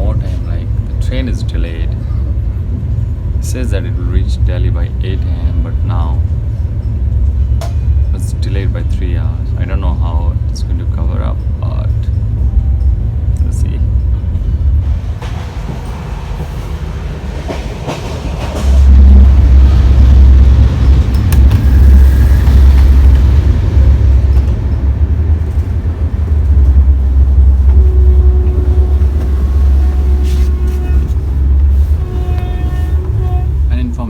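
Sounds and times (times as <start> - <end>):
train rumbling along track: 0.0 - 34.0.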